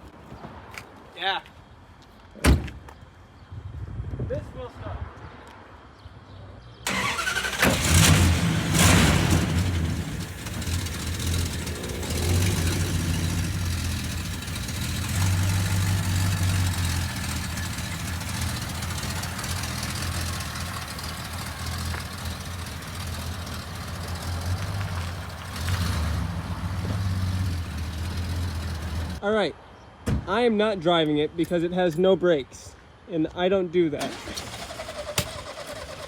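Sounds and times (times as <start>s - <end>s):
car engine revving: 6.9s - 29.2s.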